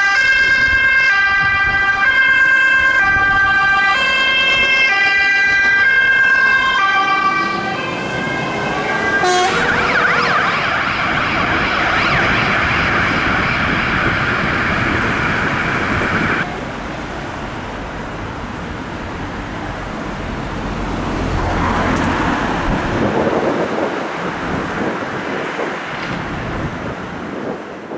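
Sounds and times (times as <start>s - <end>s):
fire engine siren: 0.0s - 16.8s
road noise: 0.0s - 27.9s
truck engine: 1.8s - 27.9s.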